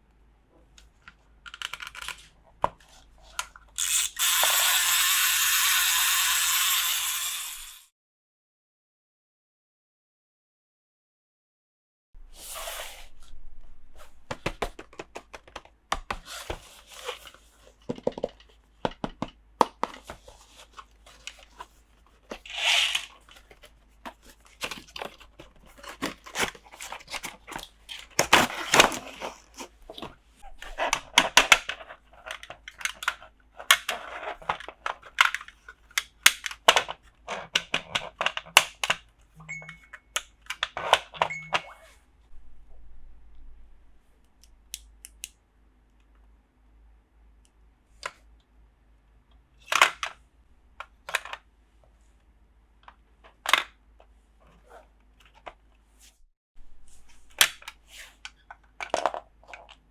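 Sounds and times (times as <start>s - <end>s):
packaging tearing and crinkling: 22.4s - 32.2s.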